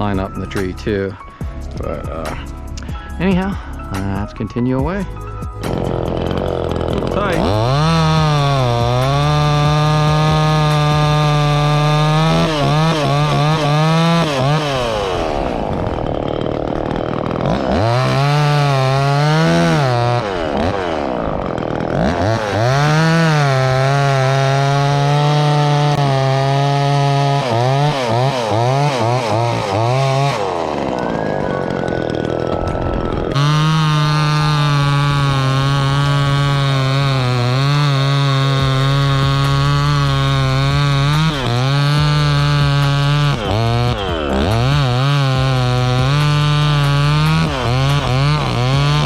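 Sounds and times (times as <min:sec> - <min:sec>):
chainsaw cutting wood: 0:00.0 - 0:49.0.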